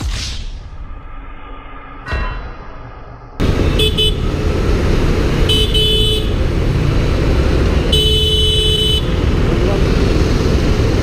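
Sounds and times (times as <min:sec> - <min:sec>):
vehicle horn: 0:03.4 - 0:04.4, 0:05.4 - 0:06.5, 0:07.8 - 0:09.2
traffic road and wind noise: 0:03.4 - 0:11.0.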